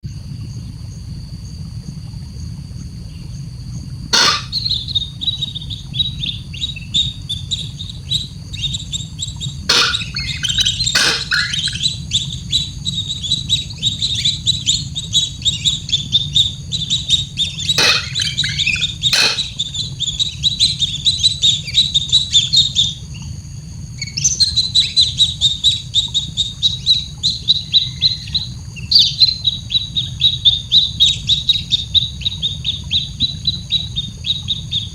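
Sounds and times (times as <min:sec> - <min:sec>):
steady low hum: 0:00.1 - 0:23.9.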